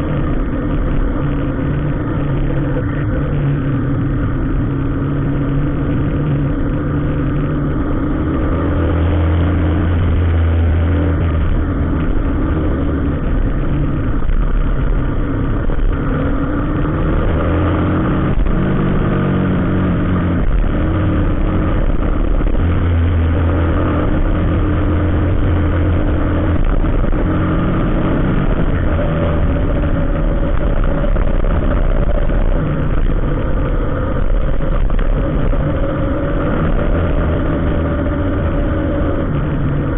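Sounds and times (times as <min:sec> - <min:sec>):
vehicle engines running at low revs: 0:00.0 - 0:39.9.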